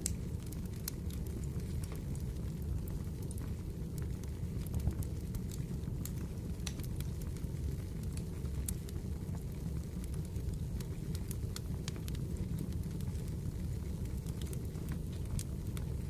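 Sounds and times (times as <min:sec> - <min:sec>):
fireplace fire crackling: 0:00.0 - 0:16.0.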